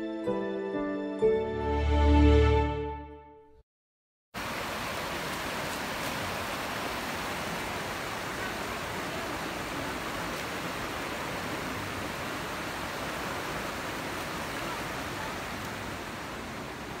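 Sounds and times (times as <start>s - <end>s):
river rapids rushing: 4.4s - 17.0s.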